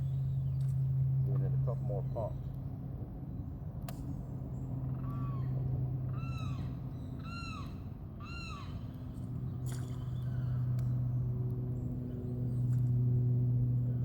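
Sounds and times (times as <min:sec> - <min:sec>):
steady low hum: 0:00.0 - 0:14.0
bird calling: 0:06.1 - 0:09.1.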